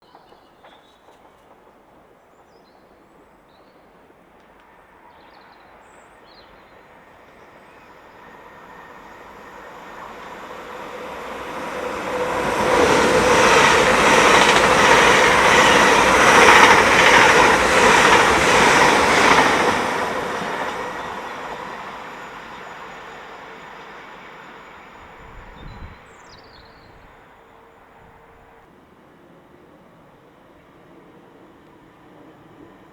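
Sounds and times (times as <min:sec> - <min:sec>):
train passing: 0:00.0 - 0:32.9
wheels clattering over track: 0:12.2 - 0:20.8.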